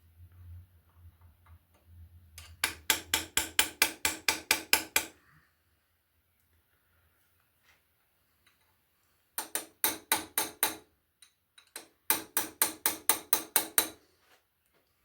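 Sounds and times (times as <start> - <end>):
hammer tapping metal chisel: 2.4 - 5.2, 9.4 - 14.0.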